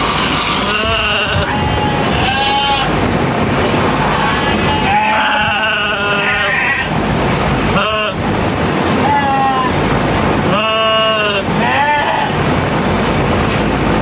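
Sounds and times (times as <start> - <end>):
sheep bleating: 0.0 - 3.0, 4.1 - 6.9, 10.6 - 12.4.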